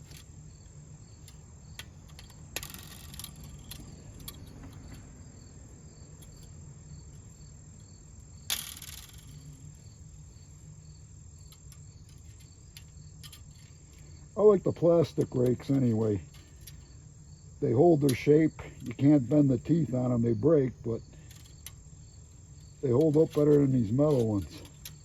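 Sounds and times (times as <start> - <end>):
crickets chirping: 0.0 - 25.0
metal rake scraping: 22.8 - 25.0.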